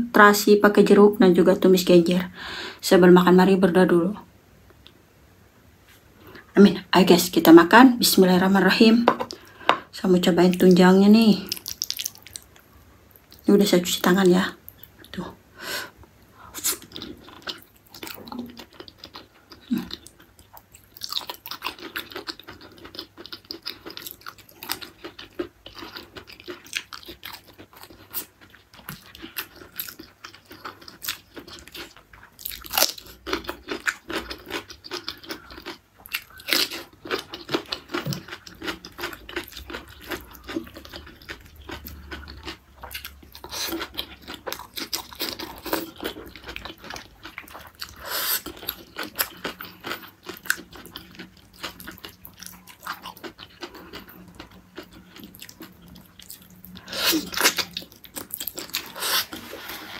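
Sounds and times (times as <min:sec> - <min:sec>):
crunching raw vegetables: 0:11.4 - 0:13.5
wet chewing and biting: 0:11.5 - 0:12.6.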